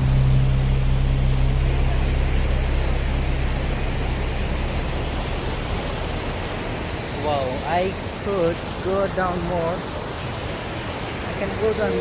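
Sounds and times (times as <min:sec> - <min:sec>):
low steady hum: 0:00.0 - 0:07.6
waterfall pouring: 0:00.0 - 0:12.0.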